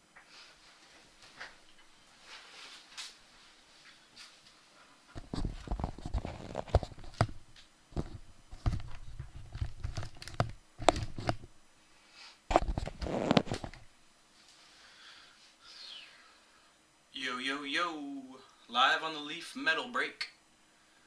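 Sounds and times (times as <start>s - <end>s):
handling rustling and scraping: 0.3s - 11.6s, 12.5s - 14.6s.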